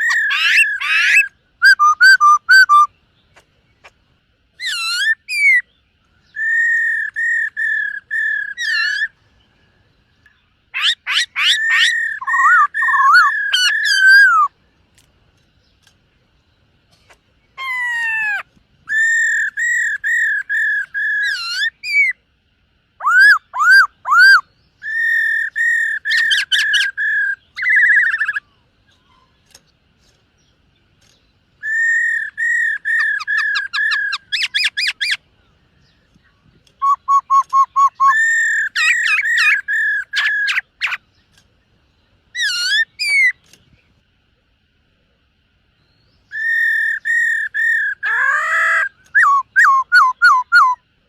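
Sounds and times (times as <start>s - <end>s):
bird singing whistled phrases: 0.0s - 3.0s, 4.6s - 9.1s, 10.8s - 14.5s, 17.6s - 22.2s, 23.0s - 28.4s, 31.6s - 35.2s, 36.7s - 41.0s, 45.8s - 50.8s.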